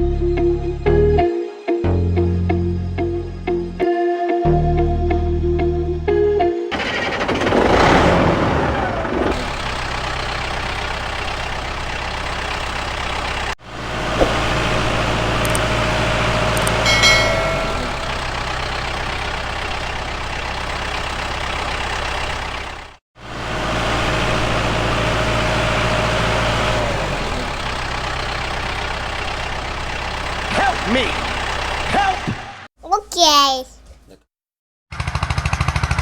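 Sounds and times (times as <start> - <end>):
high ringing tone: 16.6 - 19.2.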